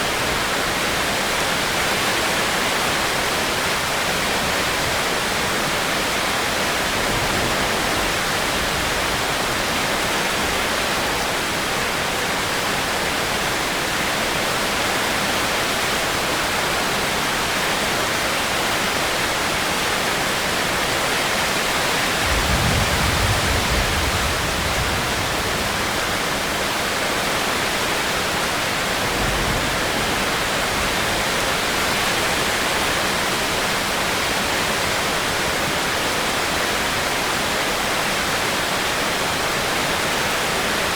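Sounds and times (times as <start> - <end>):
heavy rain hissing: 21.8 - 34.5.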